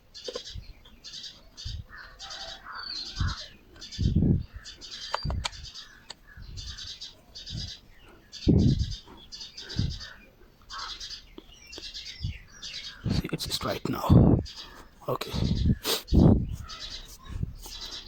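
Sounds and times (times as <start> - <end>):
bird chirping: 0.0 - 18.0
sharp clicks: 5.1 - 6.2
low thuds: 8.4 - 10.2.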